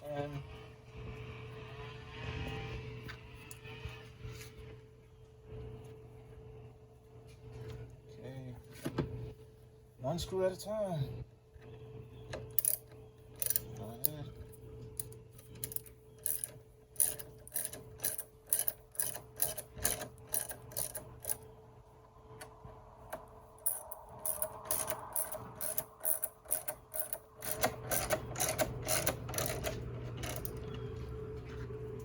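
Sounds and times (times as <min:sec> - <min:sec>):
hand ratchet clicking: 0:12.5 - 0:13.7, 0:15.6 - 0:21.4, 0:23.6 - 0:30.6.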